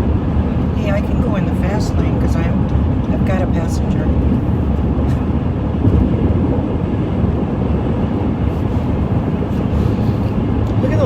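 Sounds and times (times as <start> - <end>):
car interior road rumble: 0.0 - 11.0.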